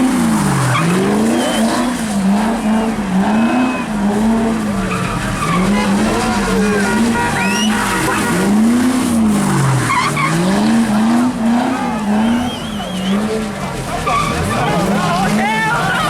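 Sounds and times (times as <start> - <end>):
car engine revving: 0.0 - 16.0
tyres spinning on wet pavement: 0.0 - 16.0.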